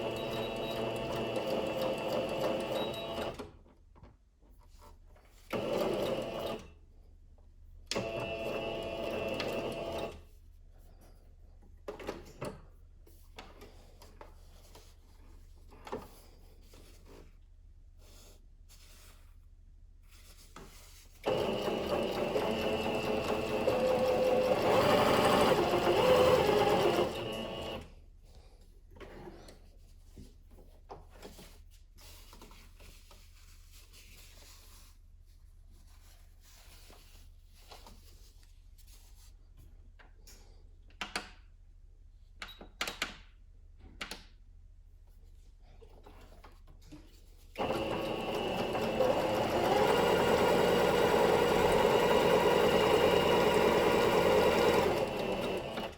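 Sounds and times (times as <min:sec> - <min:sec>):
sewing machine running: 0:00.0 - 0:03.4, 0:05.5 - 0:06.7, 0:08.0 - 0:10.2, 0:21.2 - 0:27.9, 0:47.6 - 0:55.9.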